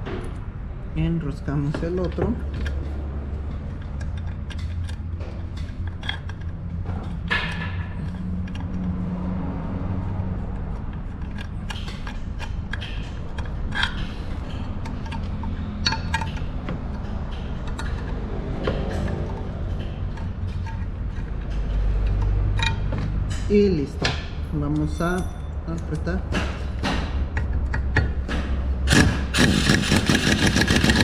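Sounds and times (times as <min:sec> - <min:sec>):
metallic clinks of tools and screws: 0:24.2 - 0:26.4.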